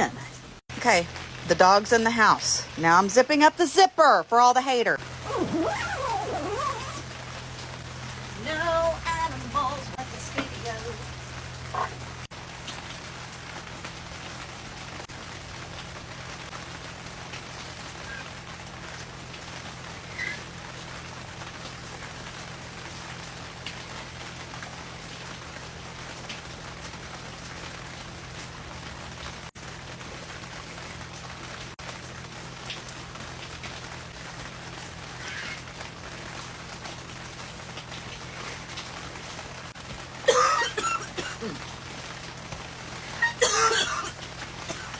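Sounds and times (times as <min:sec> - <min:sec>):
steady rain: 0:00.0 - 0:44.9.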